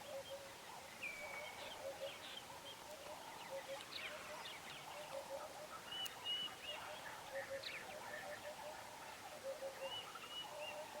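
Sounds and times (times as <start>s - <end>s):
birds chirping and whistling: 0.0s - 8.7s, 9.5s - 11.0s.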